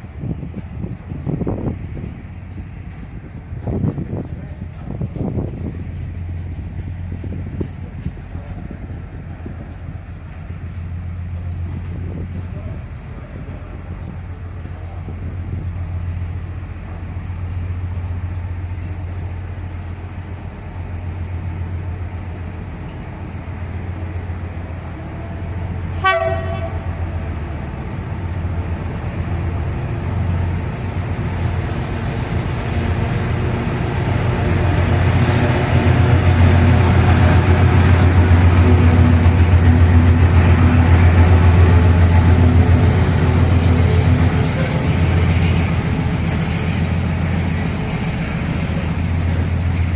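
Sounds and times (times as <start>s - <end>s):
locomotive rumble: 0.0s - 49.9s
train horn toot: 25.9s - 27.0s.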